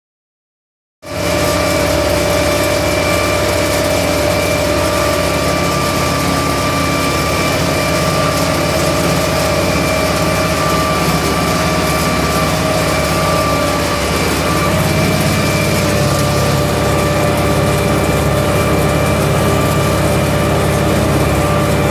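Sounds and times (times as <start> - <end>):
tractor diesel engine running: 1.0 - 21.9
steady whine: 1.1 - 21.9.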